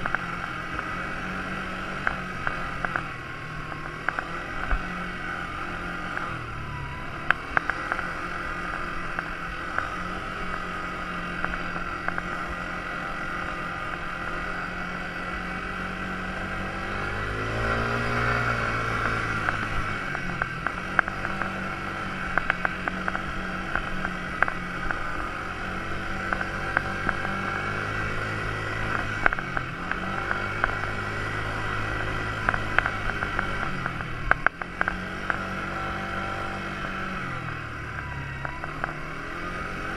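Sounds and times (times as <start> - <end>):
quad bike engine revving: 0.0 - 39.9
sharp clicks and knocks: 31.9 - 36.1.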